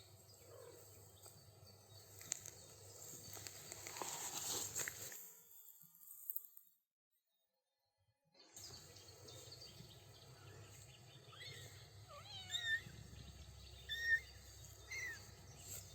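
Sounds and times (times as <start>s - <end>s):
kittens meowing: 11.3s - 13.2s, 13.8s - 15.3s.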